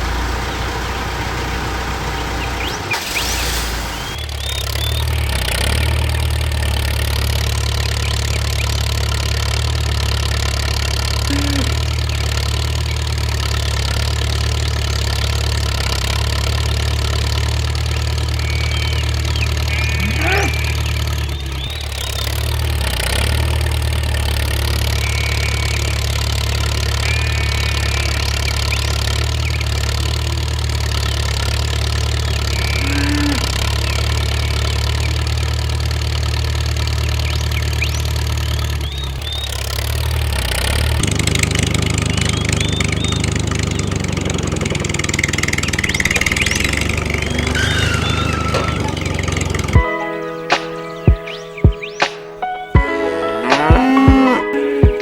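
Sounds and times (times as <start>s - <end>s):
engine idling: 0.0s - 53.4s
faint high chirps: 45.9s - 55.0s.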